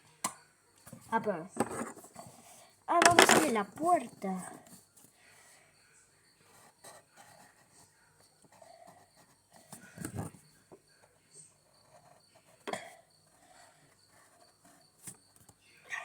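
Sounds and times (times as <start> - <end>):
cricket chirping: 8.3 - 16.0.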